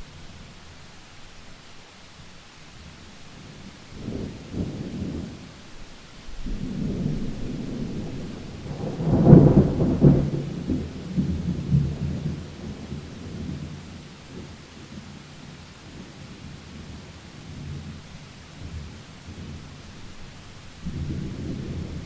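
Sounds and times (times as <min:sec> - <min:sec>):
steady rain: 0:00.0 - 0:22.0
thunder rumbling: 0:06.4 - 0:14.6, 0:18.6 - 0:22.0.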